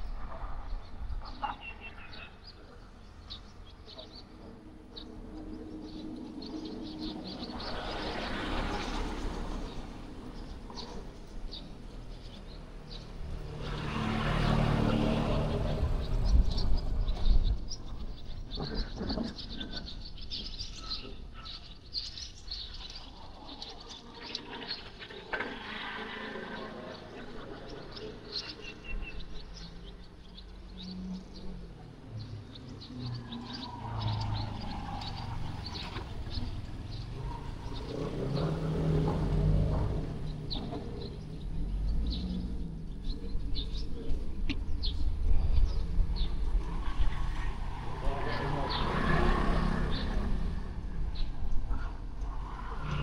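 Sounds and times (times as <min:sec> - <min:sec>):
small birds chirping: 0:00.0 - 0:53.0
vehicle passing: 0:05.3 - 0:18.1, 0:30.9 - 0:53.0.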